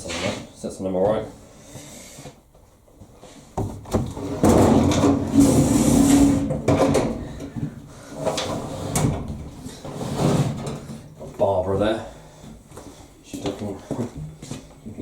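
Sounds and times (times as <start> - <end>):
rough rumbling scrape: 4.2 - 7.4, 8.2 - 11.0.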